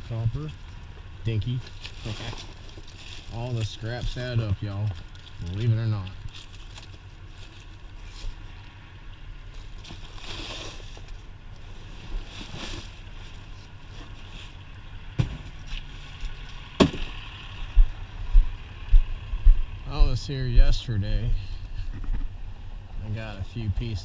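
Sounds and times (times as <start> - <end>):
steady low rumble: 0.0 - 24.0
dull thumps: 15.1 - 15.7.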